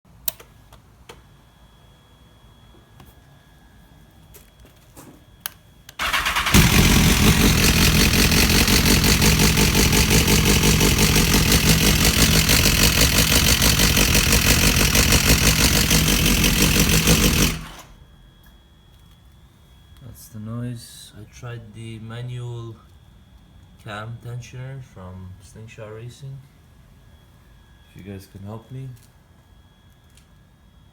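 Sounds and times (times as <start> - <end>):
motorcycle engine starting and idling: 6.0 - 18.0.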